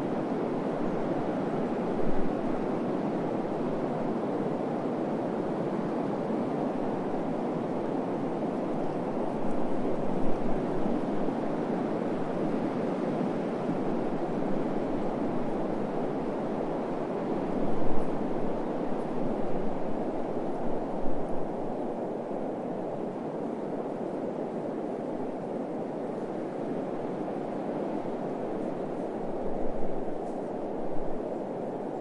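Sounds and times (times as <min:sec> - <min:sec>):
wind gusts buffeting microphone: 0:00.0 - 0:32.0
wind blowing: 0:05.6 - 0:32.0.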